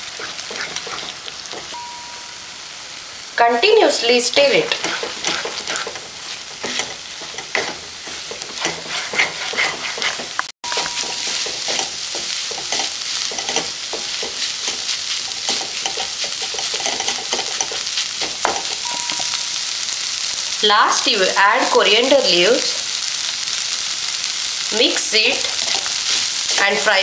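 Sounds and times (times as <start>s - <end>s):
eggs sizzling in frying pan: 0.0s - 27.0s
wooden spatula scraping pan: 0.2s - 1.7s, 4.5s - 18.7s.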